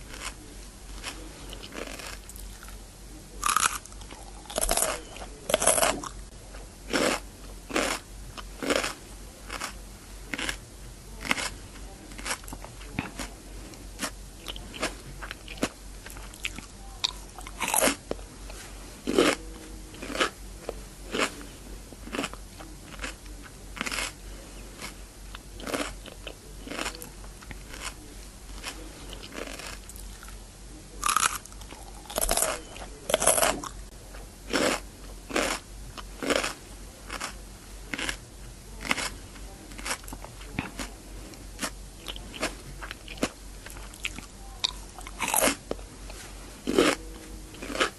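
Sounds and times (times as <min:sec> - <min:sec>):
crunchy chewing of cucumber: 0:00.0 - 0:47.9.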